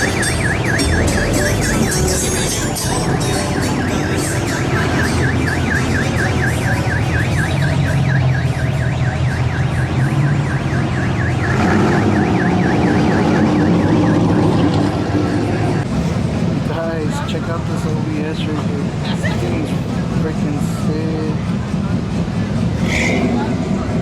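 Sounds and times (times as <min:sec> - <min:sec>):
low steady rumble: 0:00.0 - 0:09.6
electronic siren yelp warbling: 0:00.0 - 0:15.8.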